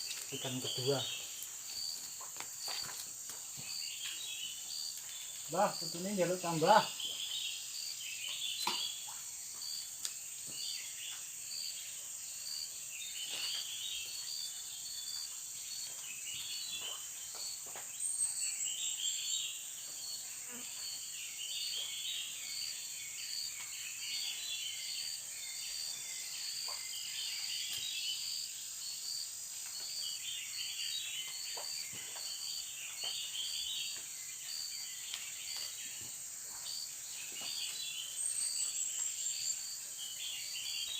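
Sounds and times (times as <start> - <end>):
insect chirping: 0.0 - 40.9
faint small clicks: 9.9 - 10.2.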